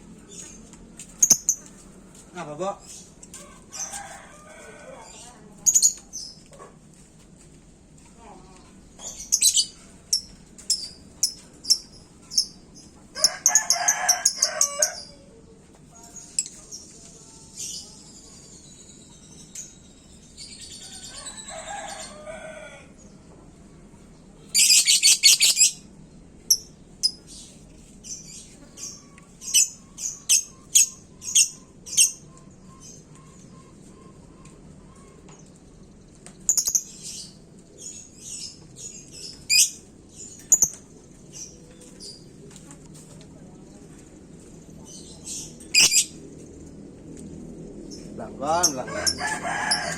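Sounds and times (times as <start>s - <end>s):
rooster-like crow: 3.3s - 5.3s, 13.2s - 15.3s, 20.8s - 23.0s, 48.6s - 49.9s
birds with lower-pitched calls: 8.8s - 15.3s, 16.0s - 23.2s, 24.4s - 35.6s, 36.4s - 42.3s, 44.7s - 46.7s
bird chirping and trilling: 9.0s - 12.6s, 24.5s - 25.9s, 36.5s - 40.8s, 44.9s - 46.2s.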